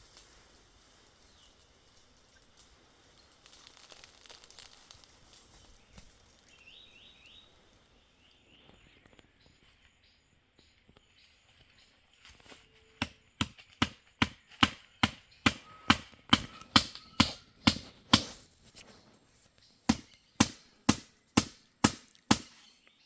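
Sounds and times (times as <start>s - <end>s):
blade chopping into wood: 13.0s - 18.4s, 19.9s - 22.7s.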